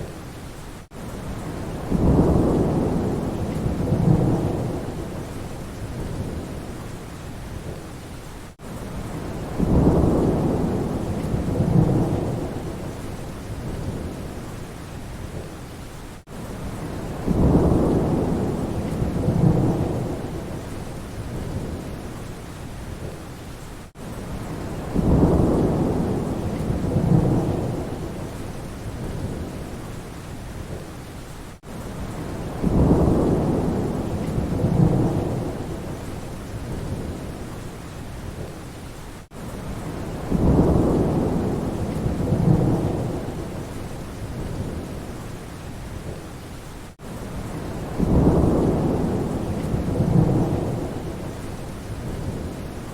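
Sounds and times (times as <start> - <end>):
steady rain: 0.0 - 52.9
low thunder rumble: 1.3 - 6.8, 9.0 - 14.5, 16.6 - 22.2, 24.3 - 29.8, 32.0 - 37.5, 39.7 - 45.2, 47.4 - 52.8.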